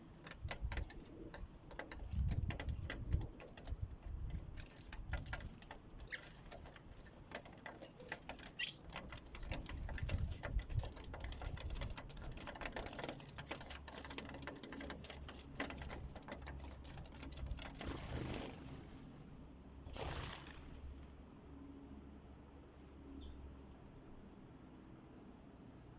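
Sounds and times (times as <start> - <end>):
birds pecking at feeder: 0.0 - 18.8
bird chirps: 6.0 - 6.8, 7.8 - 9.2, 23.0 - 23.4.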